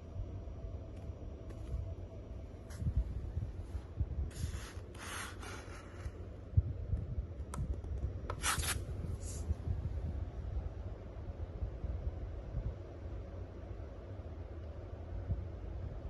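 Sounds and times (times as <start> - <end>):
cooling fan humming: 0.0 - 16.0
short rubbing noises: 8.3 - 9.4.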